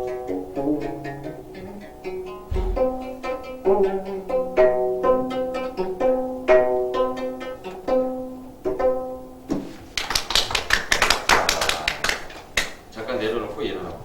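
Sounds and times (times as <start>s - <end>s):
plucked zither notes: 0.0s - 9.4s
people clapping: 10.0s - 12.8s.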